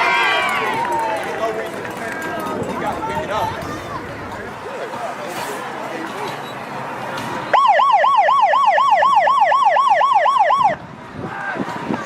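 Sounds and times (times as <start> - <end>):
electronic siren yelping: 7.6 - 10.8.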